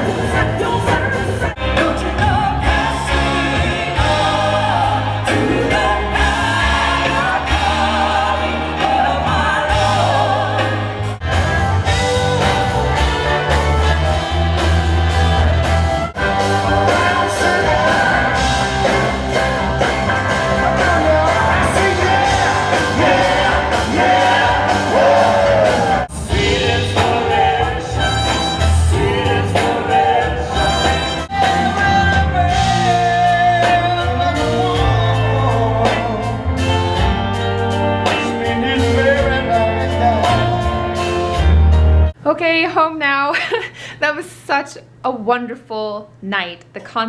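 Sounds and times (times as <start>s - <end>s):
rock and soul band with vocals: 0.0s - 42.2s.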